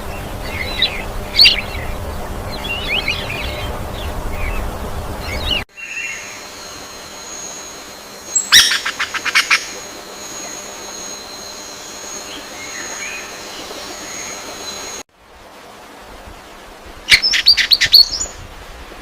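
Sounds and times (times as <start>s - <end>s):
bird chirping: 0.1s - 15.0s.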